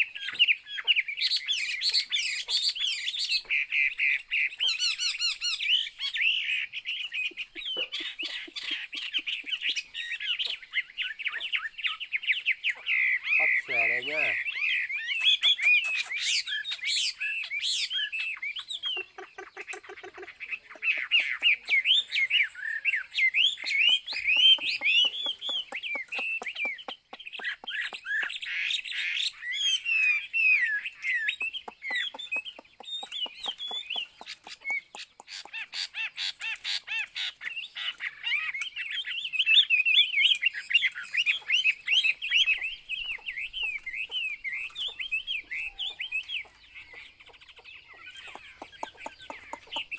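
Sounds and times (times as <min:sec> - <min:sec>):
bird clicking chatter: 0:01.3 - 0:49.9
bird singing whistles: 0:09.7 - 0:19.1, 0:21.6 - 0:35.1, 0:37.8 - 0:46.8.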